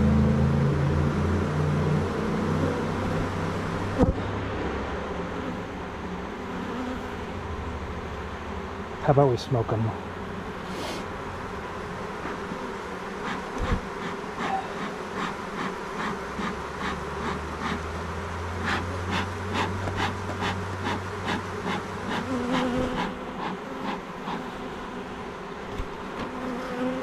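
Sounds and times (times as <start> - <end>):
honeybees buzzing: 0.0 - 27.0
short puffing sounds: 10.6 - 11.1, 13.2 - 17.8.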